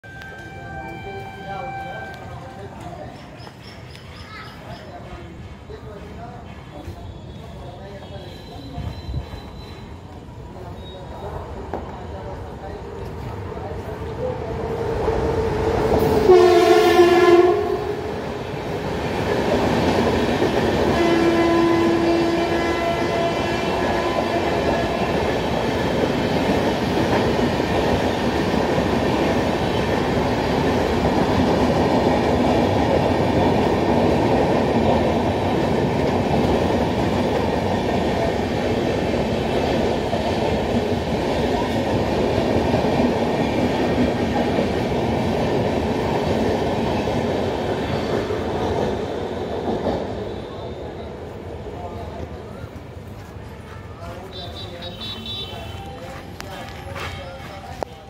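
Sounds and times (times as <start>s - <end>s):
train horn: 0.1s - 2.4s, 16.1s - 18.1s, 20.9s - 25.1s, 54.3s - 55.9s
train wheels clacking on rails: 1.9s - 10.2s, 18.1s - 50.6s.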